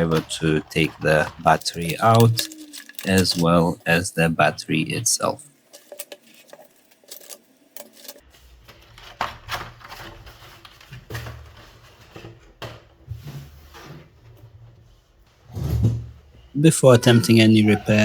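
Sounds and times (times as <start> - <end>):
small tools clicking and knocking: 0.0 - 3.9, 5.6 - 8.2
rustling: 5.6 - 16.3.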